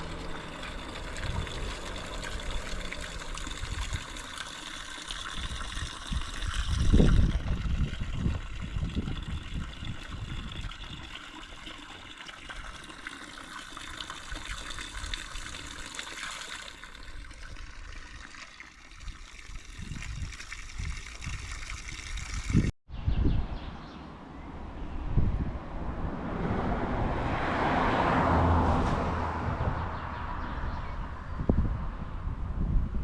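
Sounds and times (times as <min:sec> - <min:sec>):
low outdoor rumble: 0:00.0 - 0:06.2
water trickling and splashing: 0:00.0 - 0:22.8.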